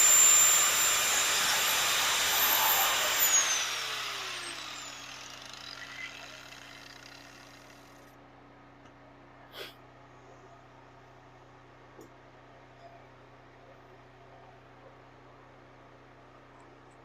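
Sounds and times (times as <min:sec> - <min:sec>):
power grinder winding down: 0:00.0 - 0:07.8.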